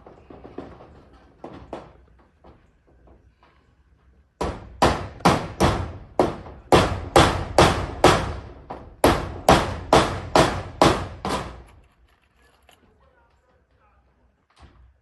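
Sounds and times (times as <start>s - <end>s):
hammer striking metal roofing: 0.0s - 3.2s, 4.4s - 11.8s.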